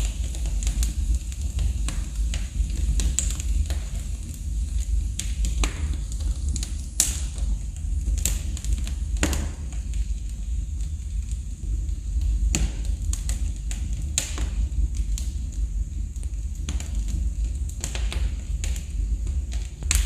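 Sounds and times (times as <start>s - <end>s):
low steady rumble: 0.0s - 20.0s
wood fire crackling: 0.0s - 20.0s.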